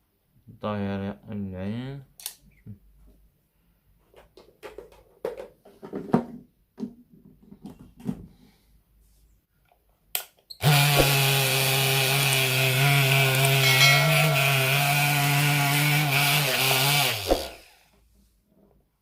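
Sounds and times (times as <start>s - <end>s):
blender motor running: 10.6s - 17.7s.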